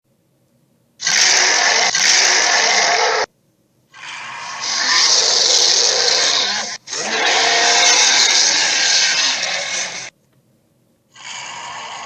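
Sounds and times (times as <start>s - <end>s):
dinosaur roar: 1.0s - 3.3s, 4.0s - 10.1s, 11.1s - 12.0s.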